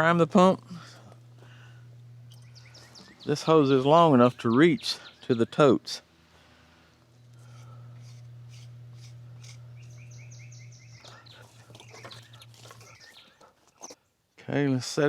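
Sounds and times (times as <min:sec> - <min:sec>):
steady low hum: 0:00.0 - 0:15.0
bird chirps: 0:02.3 - 0:05.8, 0:09.7 - 0:13.4.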